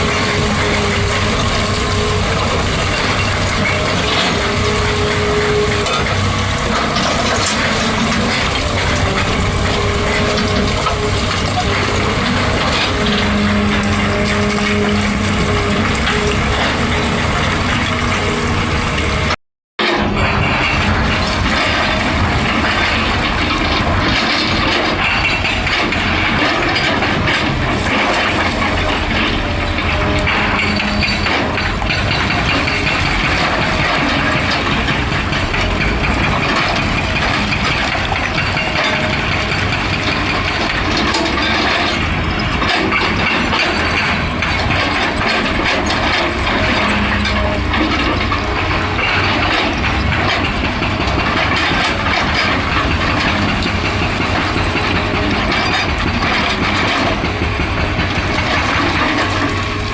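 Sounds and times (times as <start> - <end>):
continuous clatter: 0.0 - 59.9
excavator engine under load: 0.0 - 59.9.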